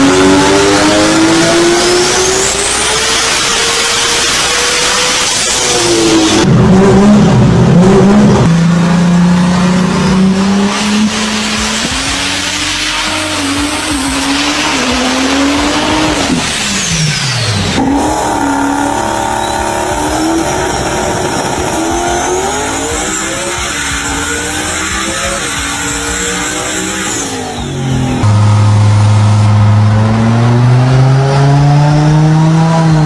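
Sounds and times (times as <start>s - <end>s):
car engine at full throttle: 0.0s - 33.0s
engine note climbing in pitch: 17.8s - 33.0s.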